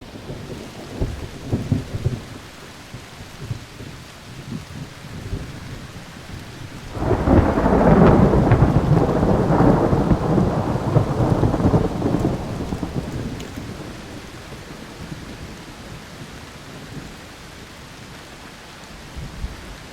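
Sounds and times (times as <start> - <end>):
thunder rumbling: 0.0 - 2.6, 3.2 - 16.3.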